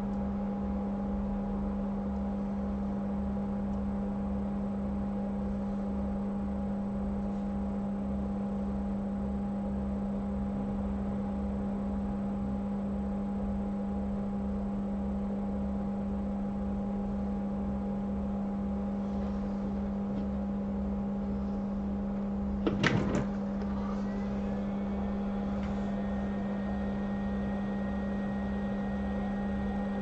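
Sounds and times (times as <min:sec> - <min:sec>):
steady electrical hum: 0:00.0 - 0:30.0
hot air rework station blowing: 0:22.6 - 0:30.0.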